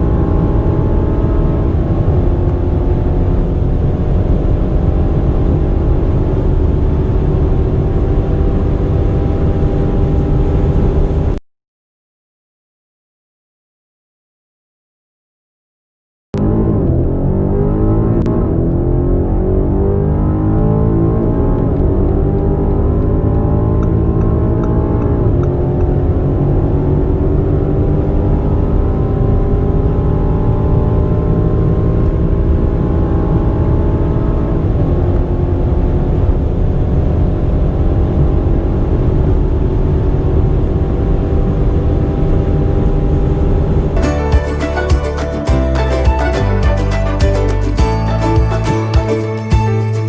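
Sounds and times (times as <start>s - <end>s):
car engine accelerating through gears: 0.0s - 11.4s, 16.4s - 44.0s.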